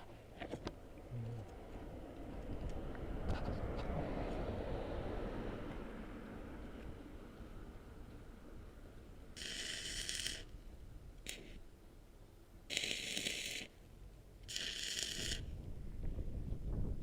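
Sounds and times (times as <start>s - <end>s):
arc welding crackling and hissing: 9.4s - 10.5s, 11.2s - 11.6s, 12.7s - 13.8s, 14.5s - 15.5s.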